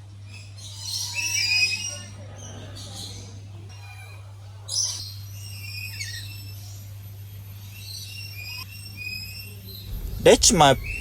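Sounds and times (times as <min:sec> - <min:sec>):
birds calling: 0:00.3 - 0:11.0
steady low hum: 0:09.8 - 0:11.0.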